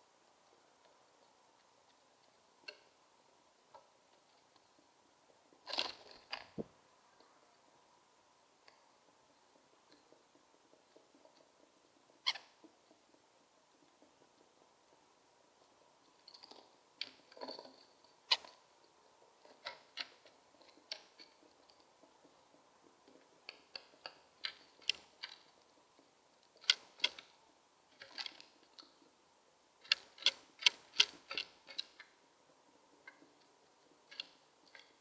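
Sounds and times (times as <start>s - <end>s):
starling clicking: 9.4s - 29.2s, 29.8s - 32.2s.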